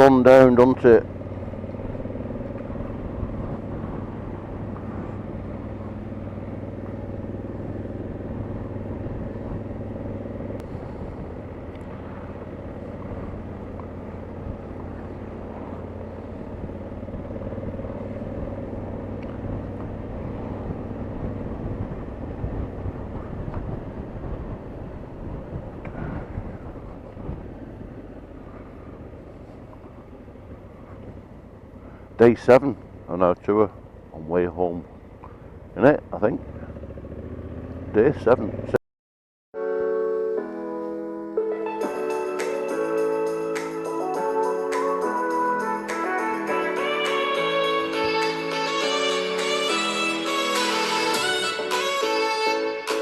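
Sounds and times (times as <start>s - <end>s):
motorcycle engine running: 0.0s - 38.8s
road and wind noise: 0.0s - 38.8s, 39.6s - 53.0s.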